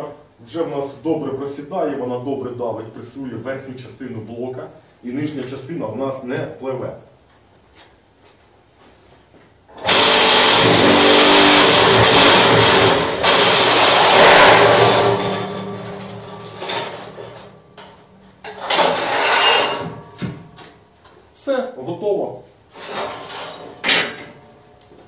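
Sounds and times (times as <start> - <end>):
vibrator motors rattling buzz: 9.7 - 20.7.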